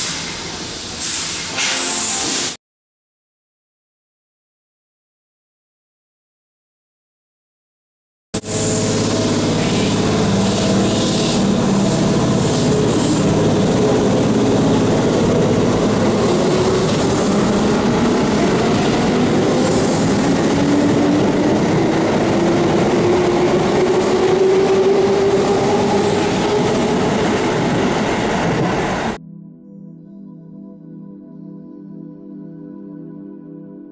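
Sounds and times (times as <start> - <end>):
train motor whine: 8.4 - 29.2
train wheels rumbling on rails: 8.4 - 29.2.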